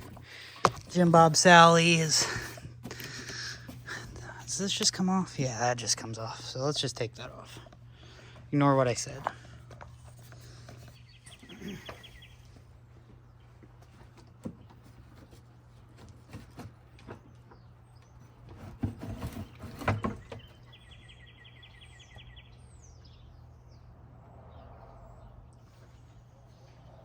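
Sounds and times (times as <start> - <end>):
birds chirping: 0.0 - 27.0
steady low hum: 0.0 - 27.0
parts knocking and clunking: 13.1 - 20.6.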